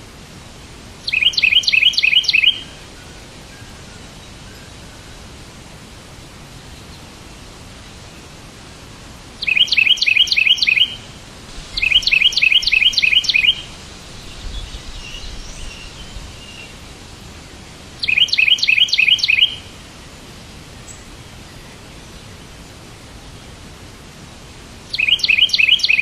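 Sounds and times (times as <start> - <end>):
steady background hiss: 0.0 - 26.0
bird chirping: 1.0 - 4.8, 9.4 - 11.1, 11.7 - 16.8, 18.0 - 19.7, 24.9 - 26.0.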